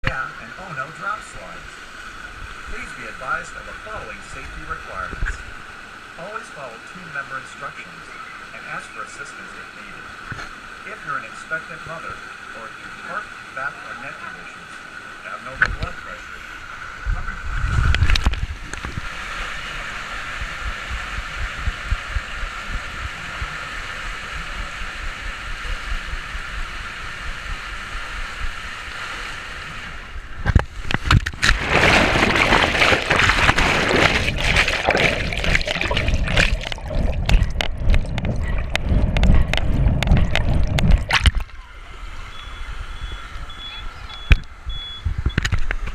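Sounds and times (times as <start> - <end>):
water rushing down slide: 15.6 - 43.6
loud churning splashing: 27.6 - 42.6.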